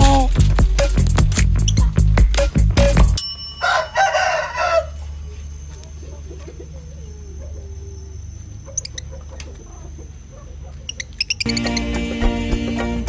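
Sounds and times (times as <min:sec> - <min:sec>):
rooster crowing: 0:03.6 - 0:08.2
faint clucking: 0:05.3 - 0:11.2.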